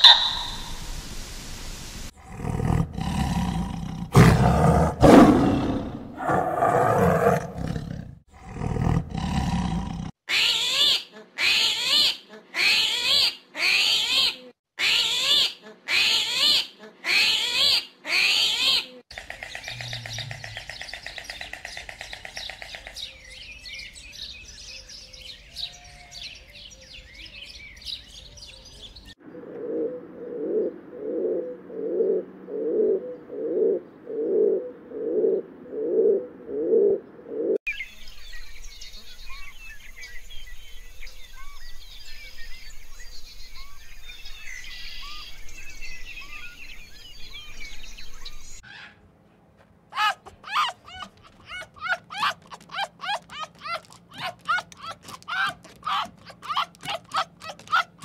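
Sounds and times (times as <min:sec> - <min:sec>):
pigeons cooing: 0:00.0 - 0:00.8, 0:19.2 - 0:23.6, 0:29.3 - 0:37.6, 0:50.0 - 0:58.0
short animal calls: 0:00.0 - 0:00.8, 0:50.0 - 0:58.0
high chirping: 0:00.0 - 0:01.0
low rough roaring calls: 0:02.1 - 0:10.1, 0:19.2 - 0:22.7.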